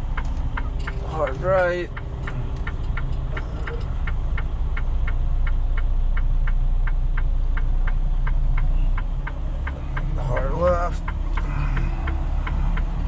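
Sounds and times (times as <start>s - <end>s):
diesel truck engine running: 0.0s - 13.0s
mechanical ticking: 0.0s - 13.0s.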